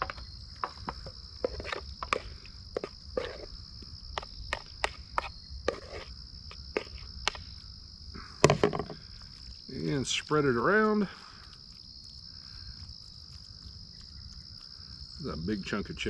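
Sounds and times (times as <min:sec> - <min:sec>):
crickets trilling: 0:00.0 - 0:16.0
utensil scraping a mixing bowl: 0:01.4 - 0:03.5, 0:04.2 - 0:06.1.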